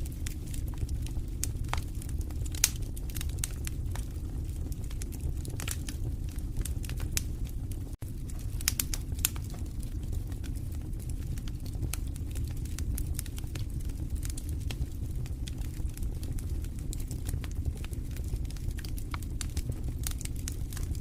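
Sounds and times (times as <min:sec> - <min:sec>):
fire crackling and popping: 0:00.0 - 0:21.0.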